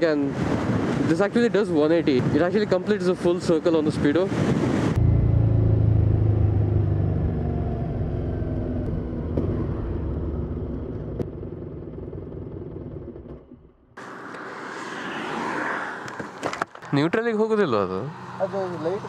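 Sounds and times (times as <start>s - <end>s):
motorcycle engine running: 5.0s - 14.0s.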